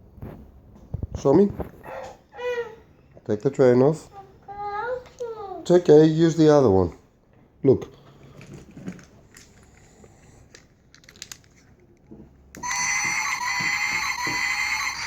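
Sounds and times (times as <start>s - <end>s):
toy train motor whirring: 12.6s - 15.0s.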